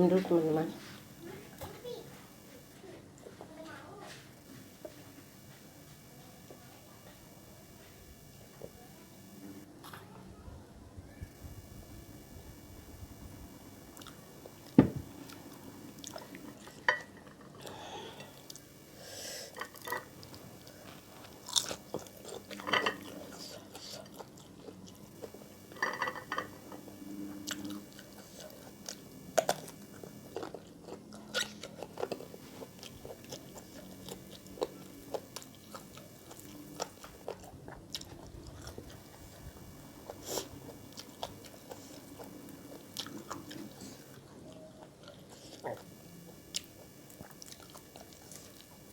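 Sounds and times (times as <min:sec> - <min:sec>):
chewing and biting: 0:19.6 - 0:25.4, 0:26.8 - 0:48.9.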